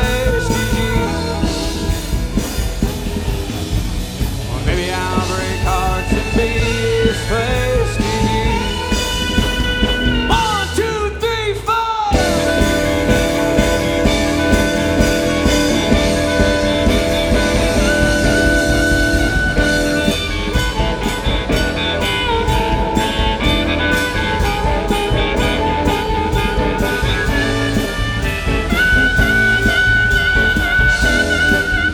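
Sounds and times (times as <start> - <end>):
live band music: 0.0 - 31.9.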